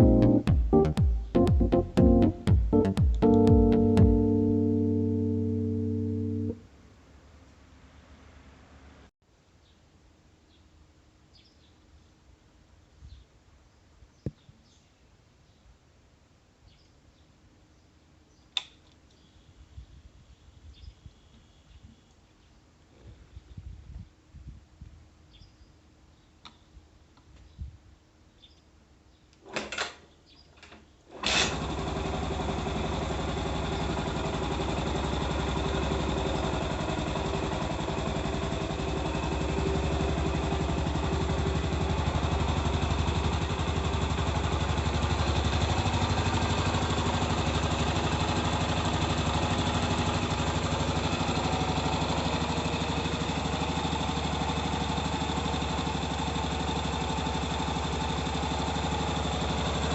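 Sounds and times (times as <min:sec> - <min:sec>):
motorcycle engine idling: 0:00.0 - 0:06.6, 0:31.3 - 0:59.9
motorcycle kick-start knocks: 0:29.5 - 0:30.0, 0:30.6 - 0:47.8.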